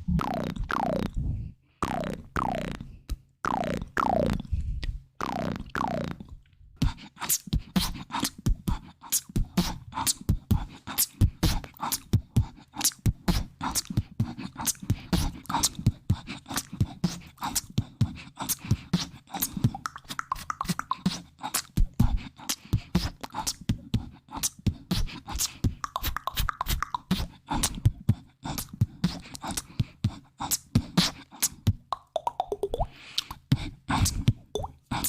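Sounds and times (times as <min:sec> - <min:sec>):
wet mouth clicks and pops: 0:01.8 - 0:10.2, 0:12.8 - 0:15.8, 0:19.3 - 0:35.0.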